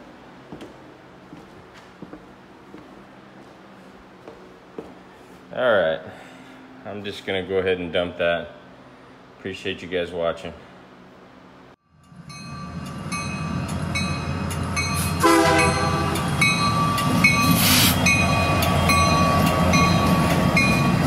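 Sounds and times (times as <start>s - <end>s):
train rumbling and clattering: 12.0s - 21.0s
train horn: 15.2s - 16.3s.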